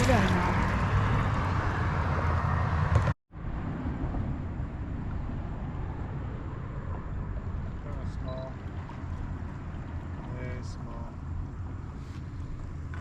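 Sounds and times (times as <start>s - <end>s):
water noise: 0.0s - 13.0s
wind: 0.0s - 13.0s
boat motor humming: 6.8s - 13.0s.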